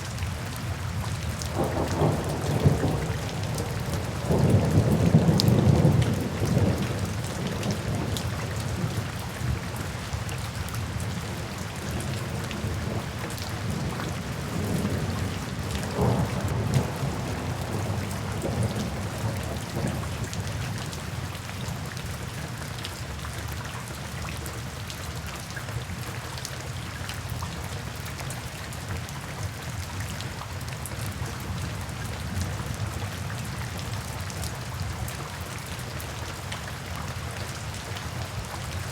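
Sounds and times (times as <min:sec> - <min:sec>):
steady rain: 0:00.0 - 0:38.9
thunder rumbling: 0:13.6 - 0:20.3.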